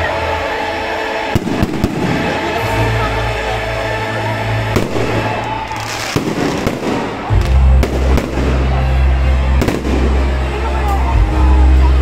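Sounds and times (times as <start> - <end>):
loud background music with bass: 0.0 - 12.0
fireworks bursting: 1.1 - 2.6, 4.7 - 10.3.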